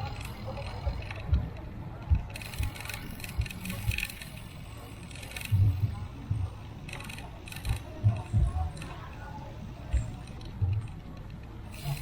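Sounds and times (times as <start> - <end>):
bicycle rattling: 0.0 - 1.3, 2.3 - 9.5.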